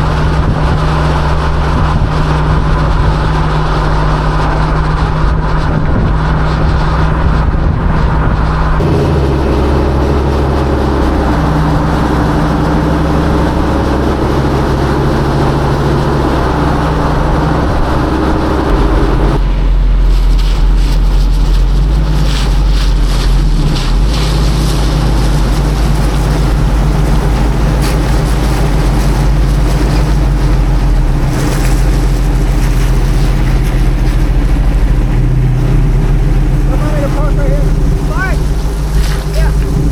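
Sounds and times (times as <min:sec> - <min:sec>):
truck engine running: 0:00.0 - 0:39.9
wind noise on microphone: 0:00.0 - 0:39.9.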